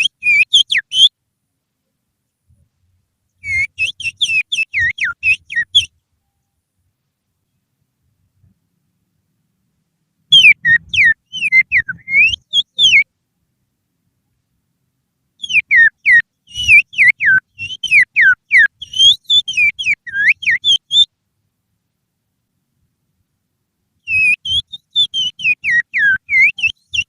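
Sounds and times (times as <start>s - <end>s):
finger whistle imitating birdsong: 0.0s - 1.1s, 3.4s - 6.5s, 10.3s - 13.1s, 15.4s - 21.1s, 24.0s - 27.0s.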